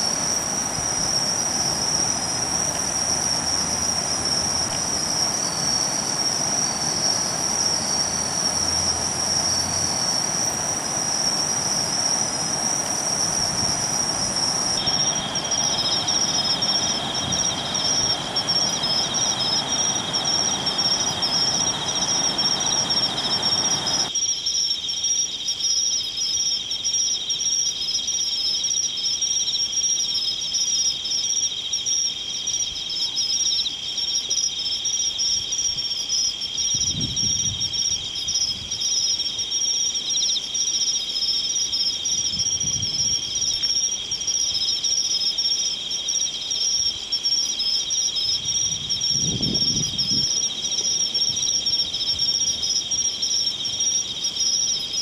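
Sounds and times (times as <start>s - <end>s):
crickets high trill: 0.0s - 55.0s
lower fast-pulsing insect trill: 0.0s - 55.0s.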